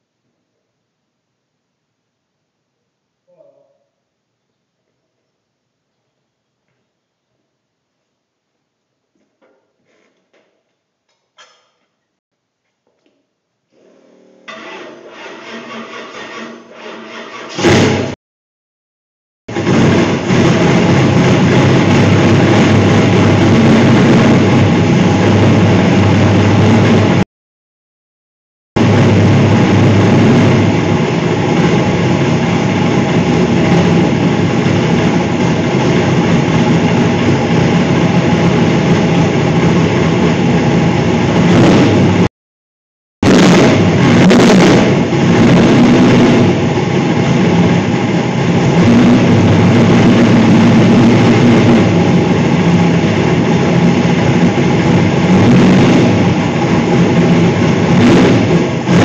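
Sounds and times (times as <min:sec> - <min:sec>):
loud car engine running: 0:19.5 - 0:27.2, 0:28.8 - 0:42.3, 0:43.2 - 0:59.0.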